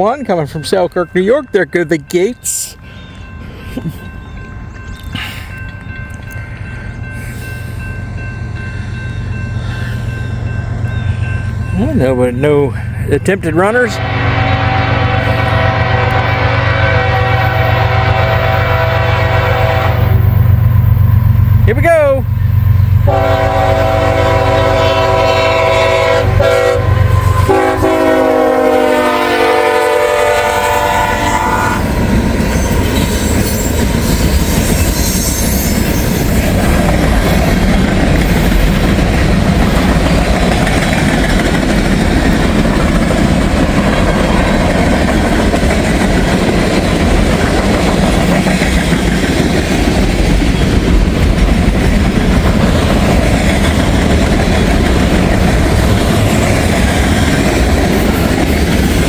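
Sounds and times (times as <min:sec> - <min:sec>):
clickety-clack of rail cars: 0:00.0 - 0:07.2, 0:07.8 - 0:59.0
deep rumble of locomotives: 0:00.0 - 0:59.0
locomotive horn blasts: 0:13.9 - 0:20.3, 0:23.0 - 0:31.9.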